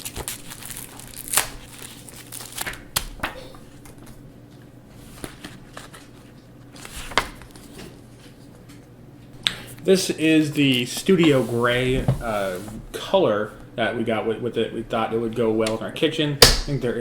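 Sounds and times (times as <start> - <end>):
packaging crinkling: 0.0 - 3.2.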